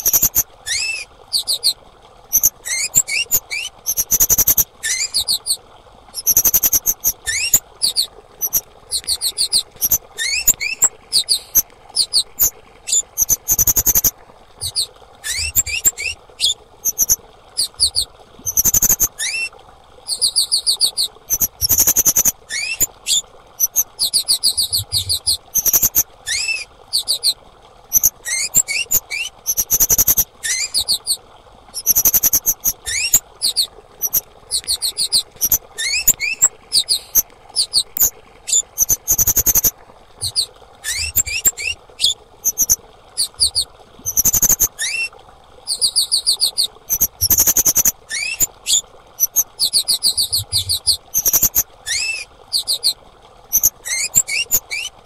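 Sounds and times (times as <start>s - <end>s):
bird calling high-pitched chirps: 0.0s - 5.6s, 6.2s - 19.5s, 20.1s - 31.2s, 31.8s - 45.1s, 45.7s - 55.0s.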